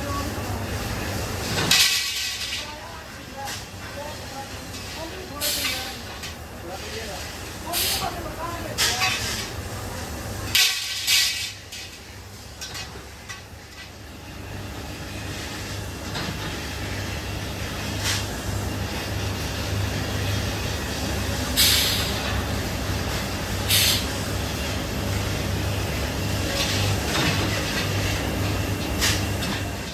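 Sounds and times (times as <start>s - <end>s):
low machine hum: 0.0s - 29.9s
short bursts of hissing: 7.7s - 8.0s, 21.6s - 22.1s, 23.7s - 24.1s.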